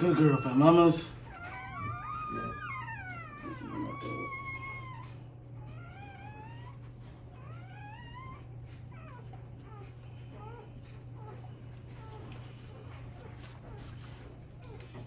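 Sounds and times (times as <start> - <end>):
puppies squealing and mewing: 0.0 - 15.0
steady low hum: 0.0 - 15.0.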